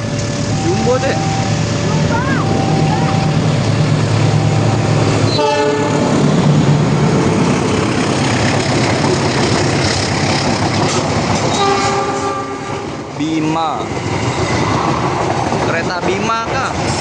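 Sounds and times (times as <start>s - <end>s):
passing train rush and rumble: 0.0s - 17.0s
train horn blast: 5.3s - 6.2s, 11.5s - 13.0s.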